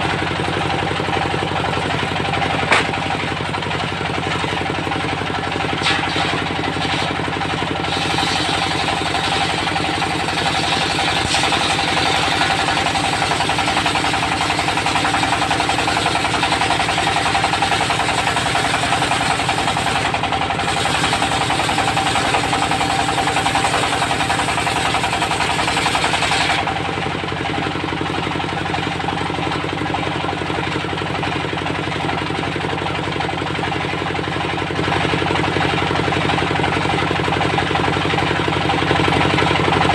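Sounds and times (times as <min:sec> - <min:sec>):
diesel engine running: 0:00.0 - 0:39.9
saw blade cutting wood: 0:01.9 - 0:03.4, 0:04.2 - 0:27.0.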